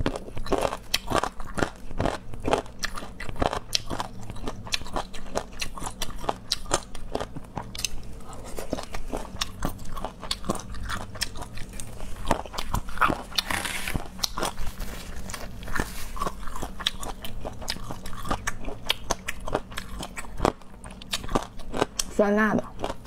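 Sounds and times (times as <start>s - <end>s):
close wet chewing crunches: 0.0s - 23.0s.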